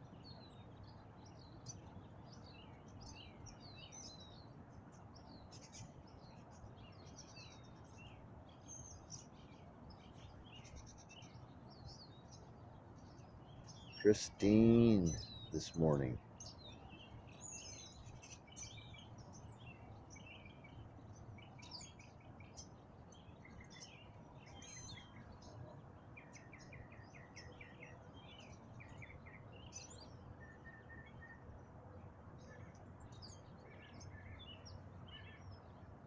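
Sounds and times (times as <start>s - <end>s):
songbirds singing faintly: 0.0s - 36.0s.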